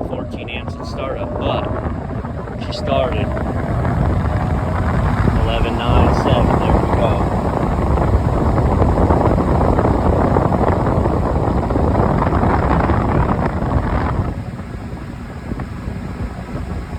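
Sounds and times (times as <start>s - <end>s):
exhaust fan running: 0.0s - 16.9s.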